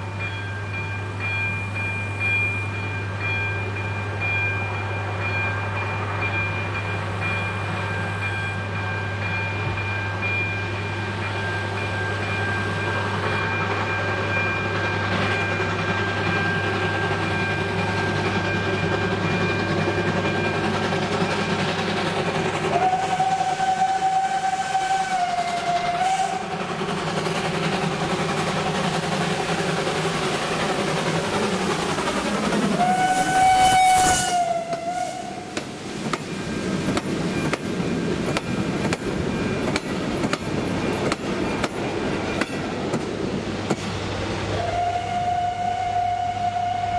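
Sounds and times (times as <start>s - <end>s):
passenger train running: 0.0s - 46.9s
train horn blast: 22.7s - 26.5s, 32.8s - 35.6s, 44.5s - 46.9s.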